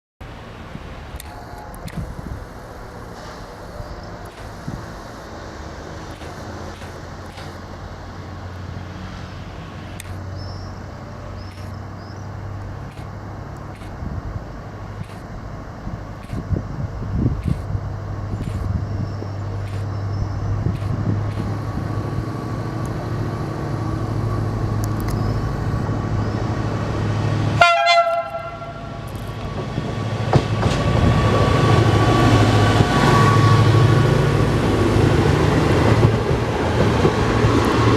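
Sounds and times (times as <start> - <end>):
diesel railcar engine drone: 0.2 - 37.9
train horn blast: 27.6 - 29.0.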